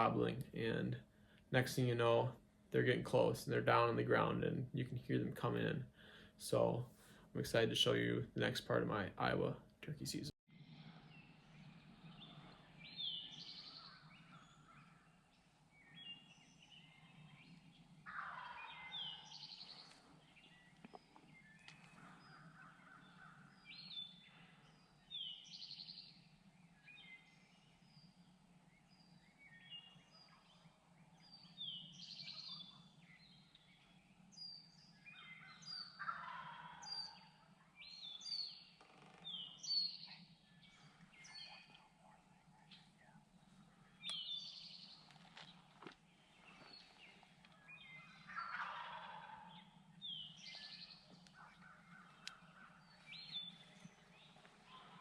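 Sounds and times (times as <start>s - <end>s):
songbirds chirping: 0.0s - 55.0s
wild turkeys gobbling: 18.0s - 24.6s, 35.1s - 37.6s, 45.0s - 55.0s.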